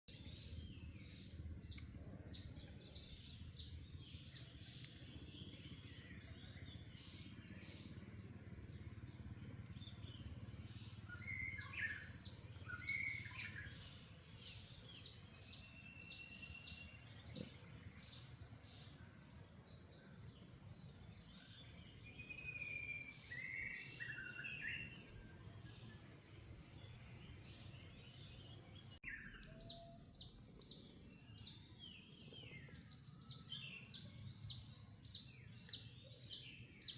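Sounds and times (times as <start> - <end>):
birds chirping: 0.0 - 36.9
lower whistled bird calls: 4.2 - 18.4, 21.3 - 25.3, 26.8 - 36.9.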